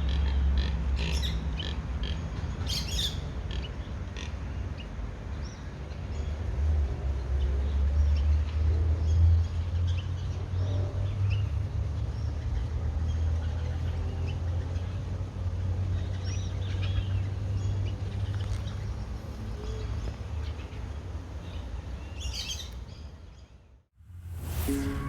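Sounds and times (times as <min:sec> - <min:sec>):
steady low rumble: 0:24.0 - 0:25.0.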